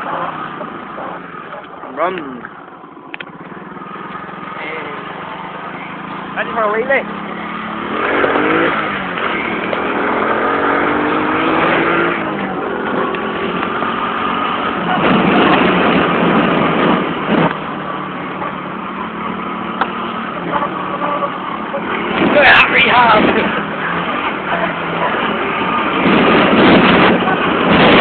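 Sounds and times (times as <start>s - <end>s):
motorbike engine revving: 0.0s - 28.0s
loud rushing noise: 3.4s - 17.8s, 21.9s - 28.0s.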